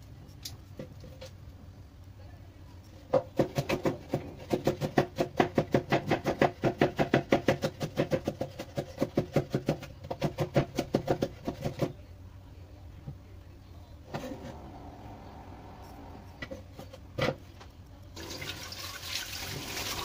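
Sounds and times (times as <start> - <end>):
knife chopping on wooden board: 3.2 - 11.9.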